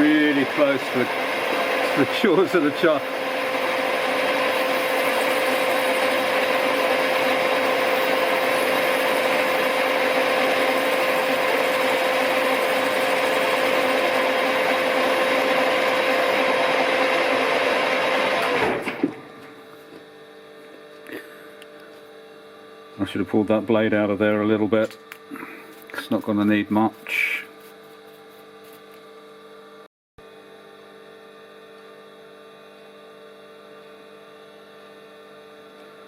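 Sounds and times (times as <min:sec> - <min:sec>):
lathe winding down: 0:00.0 - 0:19.2
lathe machining whine: 0:00.0 - 0:19.4
faint mains hum: 0:19.2 - 0:36.0.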